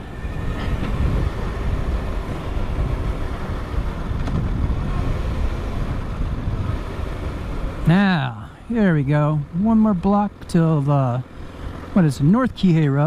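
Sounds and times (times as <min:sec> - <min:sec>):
wind buffeting helmet: 0:00.0 - 0:07.9
motorcycle engine: 0:00.0 - 0:13.0.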